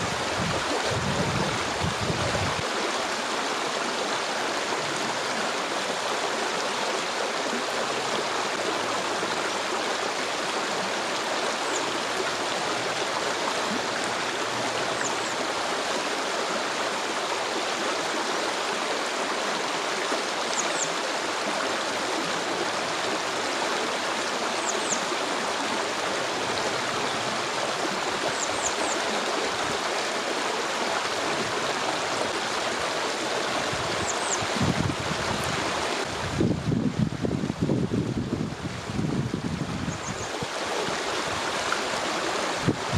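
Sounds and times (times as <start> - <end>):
stream water rushing: 0.0 - 42.9.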